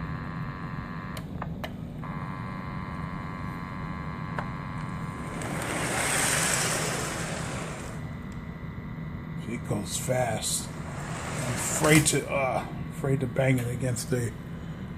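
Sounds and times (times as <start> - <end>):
model train electric hum: 0.0 - 1.3, 2.0 - 14.9
rush of noise: 5.1 - 8.1, 10.6 - 12.3.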